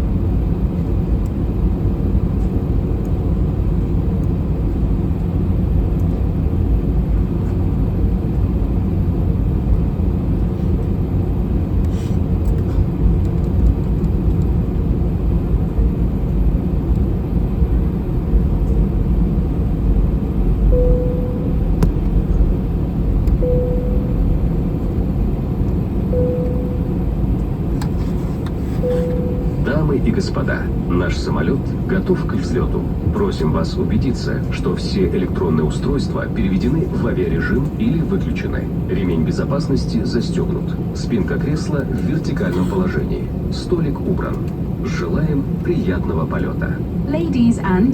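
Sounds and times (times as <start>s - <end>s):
airplane cabin engine rumble: 0.0s - 47.9s
faint short beep: 20.7s - 21.8s, 23.4s - 24.9s, 26.1s - 27.2s, 28.8s - 29.8s.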